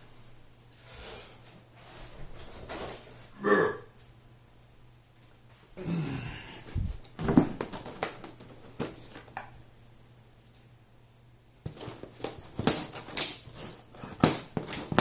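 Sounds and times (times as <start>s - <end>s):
packaging rustling and crackling: 7.0s - 9.4s.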